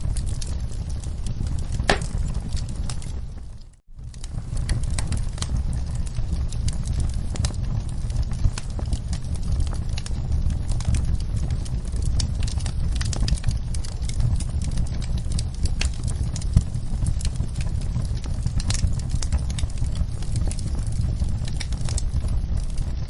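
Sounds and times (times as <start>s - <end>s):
fire rumbling: 0.0s - 23.0s
logs crackling and popping: 0.0s - 23.0s.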